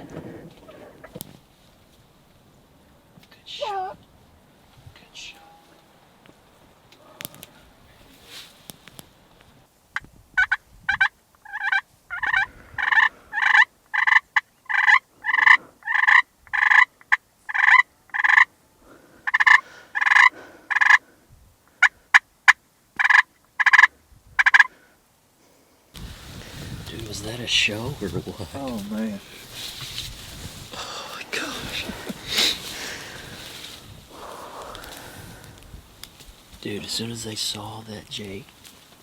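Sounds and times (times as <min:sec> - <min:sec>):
wild turkey calling: 0:10.0 - 0:25.0.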